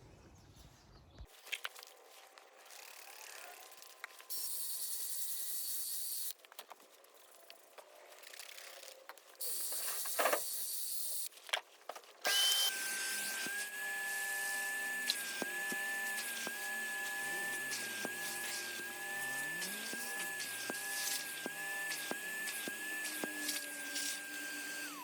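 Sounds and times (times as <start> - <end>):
drill brush scrubbing carpet: 12.3 - 25.0
wet-vac motor whining: 12.3 - 25.0.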